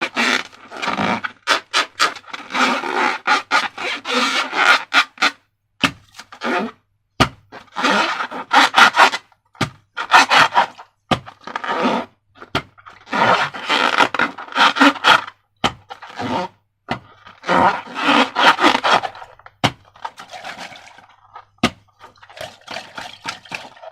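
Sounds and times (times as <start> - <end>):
rubber balloons rubbing and crackling: 0.0 - 23.9.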